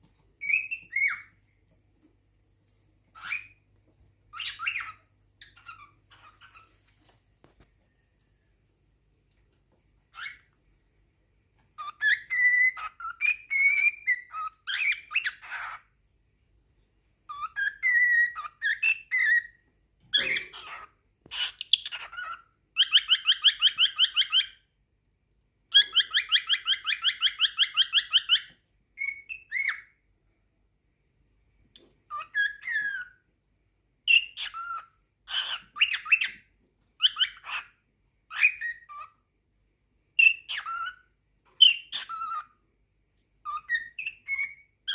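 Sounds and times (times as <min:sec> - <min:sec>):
cockatiel chirping and whistling: 0:00.4 - 0:01.4, 0:03.1 - 0:03.6, 0:04.3 - 0:07.1, 0:10.1 - 0:10.5, 0:11.7 - 0:15.9, 0:17.3 - 0:24.7, 0:25.7 - 0:30.0, 0:31.8 - 0:33.3, 0:34.1 - 0:39.2, 0:40.2 - 0:42.6, 0:43.4 - 0:44.9.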